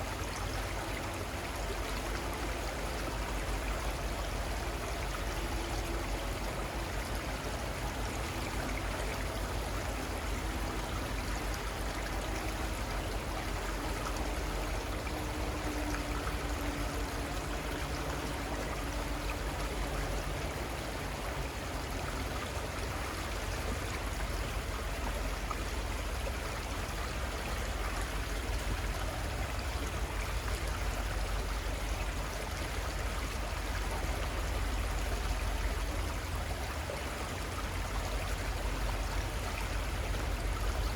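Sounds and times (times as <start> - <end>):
river water running: 0.0 - 40.9.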